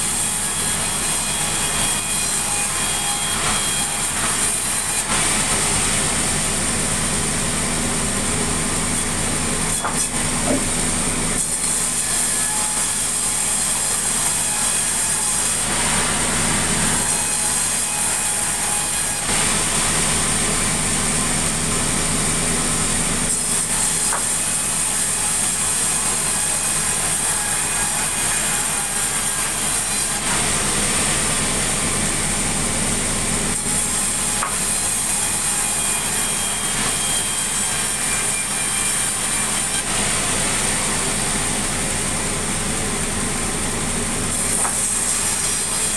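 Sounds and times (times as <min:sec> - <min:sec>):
saw cutting timber: 0:00.0 - 0:45.9.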